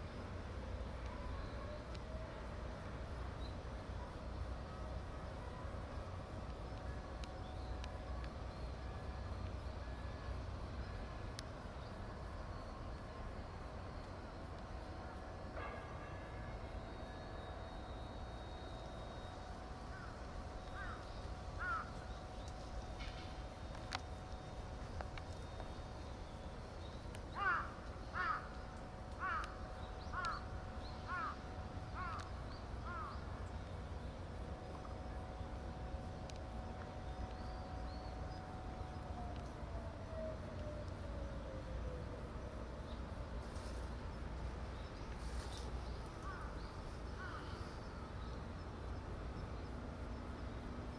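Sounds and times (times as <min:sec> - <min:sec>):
distant machinery humming: 0:00.0 - 0:50.9
crow cawing: 0:20.8 - 0:21.0, 0:21.6 - 0:21.9, 0:27.4 - 0:28.5, 0:29.2 - 0:29.5, 0:30.2 - 0:30.4, 0:31.1 - 0:31.4, 0:32.0 - 0:33.1, 0:47.2 - 0:47.6
sharp ticks: 0:26.8 - 0:30.5.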